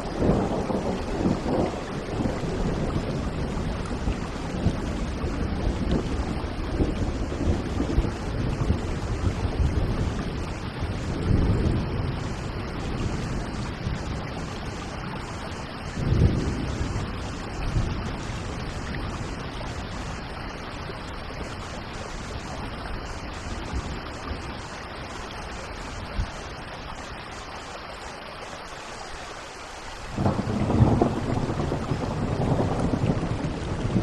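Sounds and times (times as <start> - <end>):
thunder rumbling: 0.0 - 26.7, 30.1 - 34.0
rain falling: 0.0 - 34.0.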